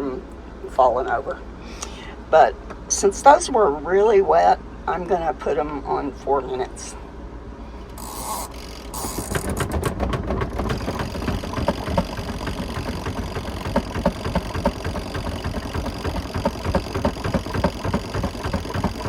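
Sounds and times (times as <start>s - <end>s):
spin dryer motor hum: 7.8s - 19.0s
spinning drum rattling and knocking: 8.0s - 19.0s.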